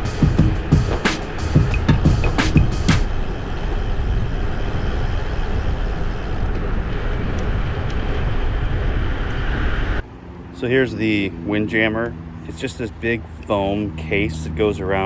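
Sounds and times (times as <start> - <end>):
bicycle tyre rumble on road: 3.1 - 10.8.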